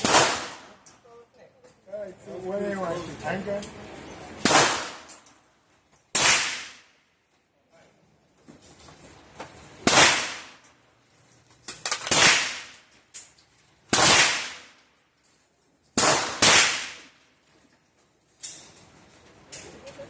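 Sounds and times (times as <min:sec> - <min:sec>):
gunshots with ringing tail: 0:00.0 - 0:00.7, 0:04.4 - 0:05.1.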